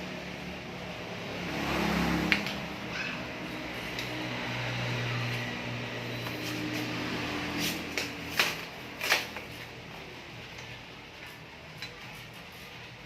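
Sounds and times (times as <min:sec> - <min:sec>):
clicks and knocks from bicycle repair: 0:07.9 - 0:09.7, 0:10.5 - 0:12.6.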